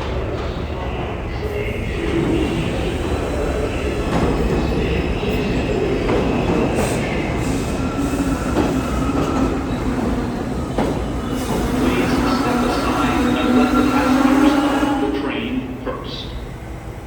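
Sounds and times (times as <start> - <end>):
subway train rumbling on rails: 0.0 - 17.0.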